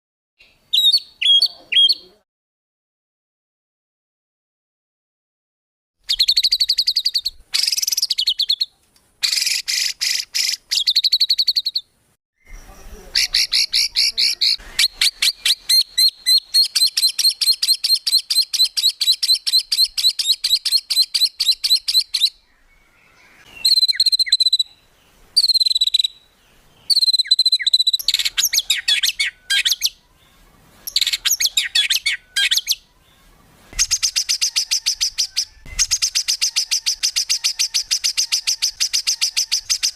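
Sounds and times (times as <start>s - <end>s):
songbird rapid sharp calls: 6.1s - 11.8s, 12.5s - 22.4s, 23.5s - 24.8s, 25.4s - 26.2s, 26.8s - 30.0s, 30.8s - 32.8s, 33.7s - 39.9s.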